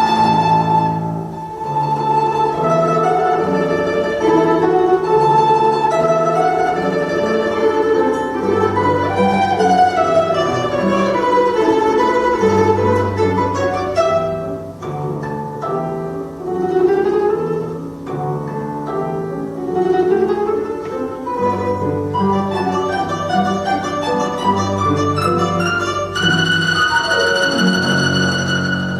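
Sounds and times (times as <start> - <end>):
plucked string melody: 0.0 - 28.9.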